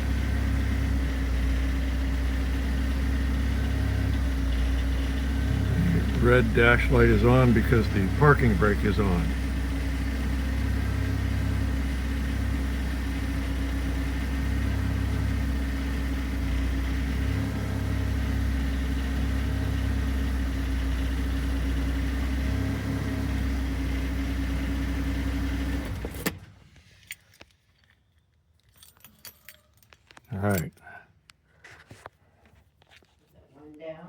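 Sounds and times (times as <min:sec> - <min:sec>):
car engine idling: 0:00.0 - 0:26.1.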